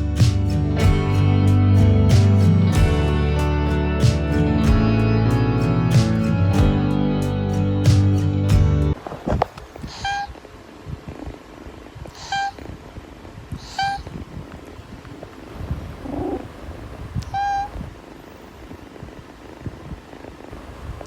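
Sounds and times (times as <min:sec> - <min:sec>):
background music: 0:00.0 - 0:09.0
cat mews: 0:09.9 - 0:10.3, 0:12.2 - 0:12.7, 0:13.6 - 0:14.1, 0:17.2 - 0:17.8.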